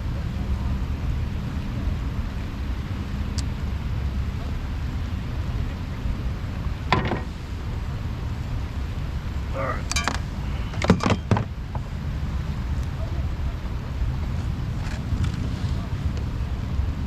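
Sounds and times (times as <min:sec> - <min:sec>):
wind buffeting microphone: 0:00.0 - 0:17.0
sharp knocks: 0:06.9 - 0:07.3.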